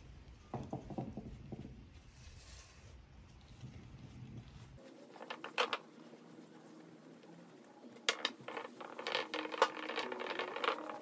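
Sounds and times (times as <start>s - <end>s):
cloth rubbing: 1.3s - 7.8s.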